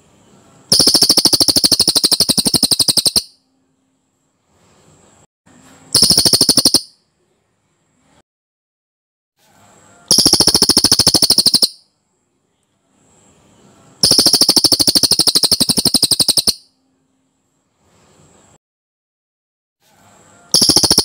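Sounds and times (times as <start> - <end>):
bird rolling trill: 0.7 - 3.3, 6.0 - 6.9, 10.1 - 11.8, 14.0 - 16.6, 20.5 - 21.0.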